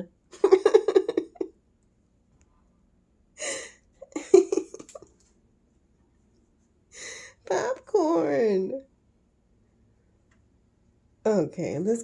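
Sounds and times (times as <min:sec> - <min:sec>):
woman laughing: 0:00.3 - 0:01.6, 0:03.4 - 0:05.2.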